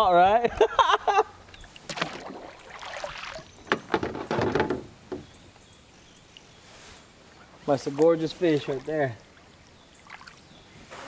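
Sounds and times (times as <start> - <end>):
water splashing at a kayak: 1.6 - 4.8, 8.7 - 10.5
sharp knocks: 3.7 - 5.3.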